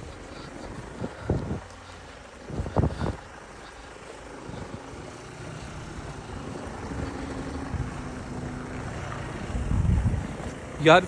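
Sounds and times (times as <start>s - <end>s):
vehicle engine approaching: 0.0s - 11.0s.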